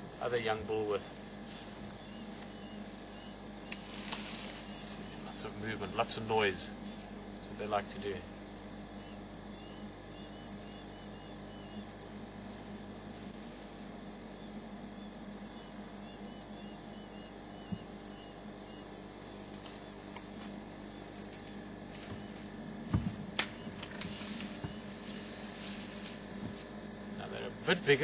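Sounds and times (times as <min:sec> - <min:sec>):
crickets chirping: 0:00.0 - 0:28.0
steady low hum: 0:00.0 - 0:28.0
leaves rustling: 0:00.3 - 0:08.4, 0:12.0 - 0:14.3, 0:19.1 - 0:27.2
twigs and branches snapping: 0:03.7 - 0:04.3, 0:19.4 - 0:20.6, 0:23.3 - 0:24.8.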